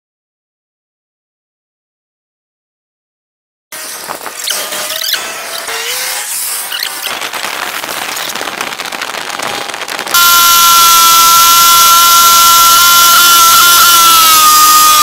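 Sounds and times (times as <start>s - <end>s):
motorcycle engine whine: 3.8s - 15.0s
wind and road noise: 3.8s - 15.0s.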